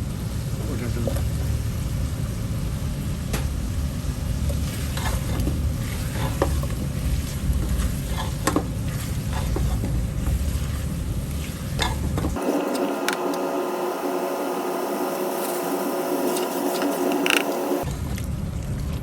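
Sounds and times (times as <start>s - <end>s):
spoon scraping a pot: 4.9s - 6.6s
food hissing while cooking: 12.4s - 17.9s.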